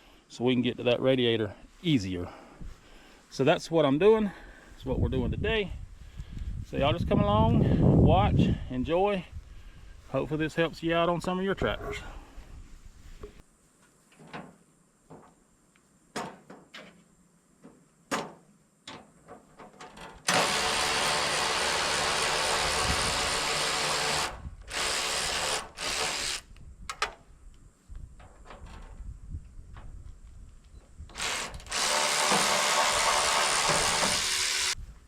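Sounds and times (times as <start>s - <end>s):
power tool running: 20.3s - 26.4s, 31.2s - 34.8s.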